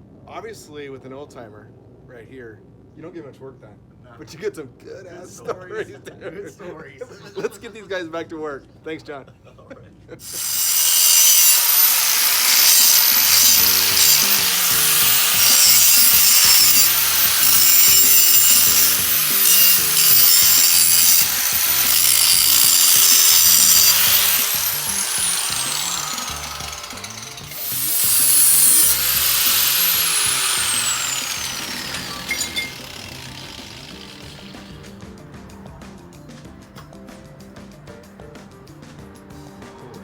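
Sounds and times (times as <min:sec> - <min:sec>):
power tool grinding metal: 0:10.2 - 0:35.0.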